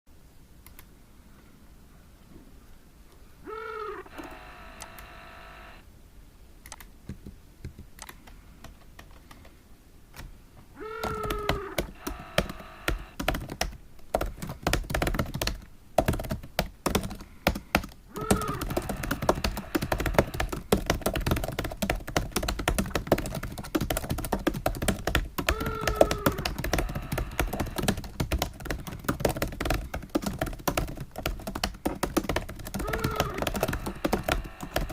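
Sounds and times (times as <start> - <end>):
fast typing on keyboard: 6.7 - 9.5, 10.9 - 34.9.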